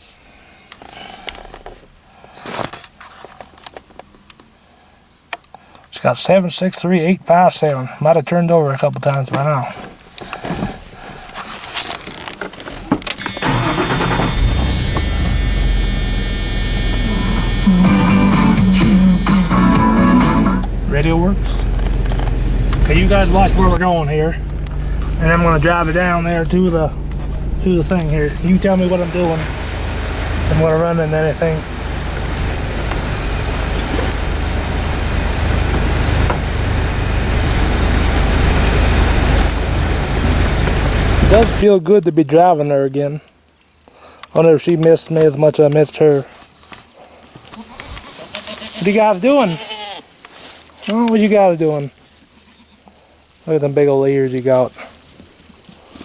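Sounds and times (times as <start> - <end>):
road noise: 11.3 - 41.6
radio hiss and hum: 13.2 - 21.6, 22.8 - 29.5
pickup truck engine running: 13.2 - 41.6.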